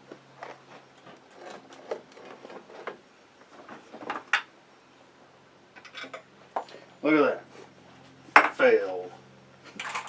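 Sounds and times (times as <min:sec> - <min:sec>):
scraping and rubbing hardware: 0:00.4 - 0:03.0.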